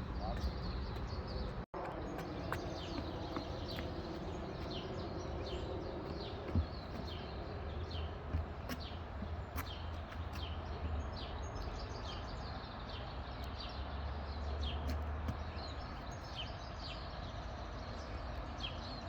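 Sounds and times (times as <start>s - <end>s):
low outdoor background noise: 0.0s - 19.0s
small birds chirping: 0.0s - 19.0s.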